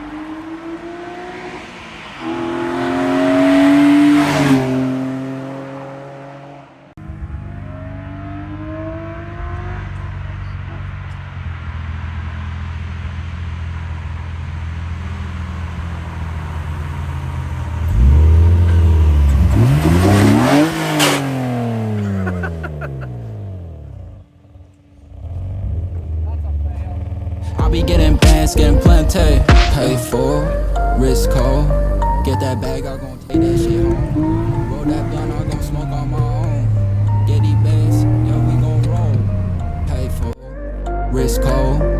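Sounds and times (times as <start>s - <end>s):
car engine revving: 0.0s - 41.9s.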